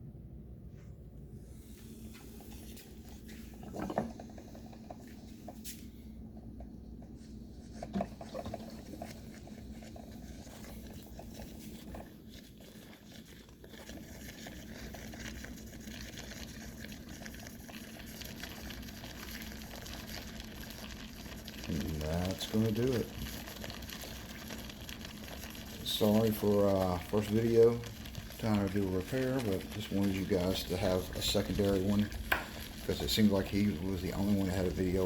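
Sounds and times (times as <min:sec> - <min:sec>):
coffee maker water gurgling and hissing: 0:01.2 - 0:35.0
sharp pops: 0:32.2 - 0:32.6.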